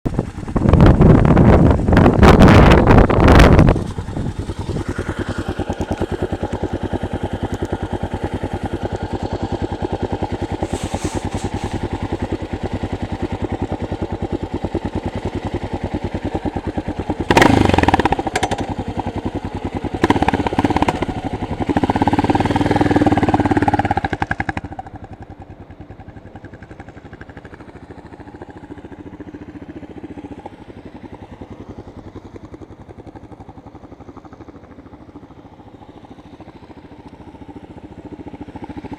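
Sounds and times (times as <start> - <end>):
motorcycle engine thumping: 10.2 - 12.5, 17.1 - 18.9
engine revving: 17.2 - 18.8, 19.9 - 25.0.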